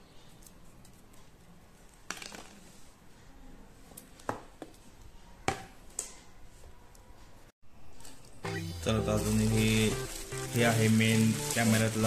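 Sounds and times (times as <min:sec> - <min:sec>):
cable rustling: 0:09.0 - 0:12.0.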